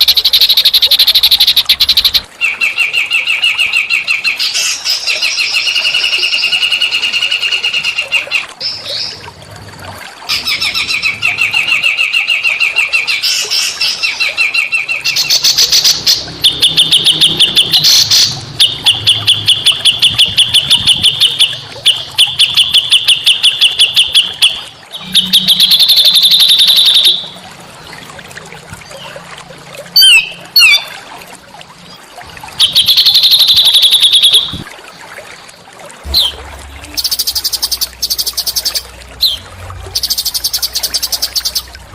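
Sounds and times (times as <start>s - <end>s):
songbirds trilling: 0.0s - 9.2s, 10.3s - 28.0s, 36.1s - 41.9s.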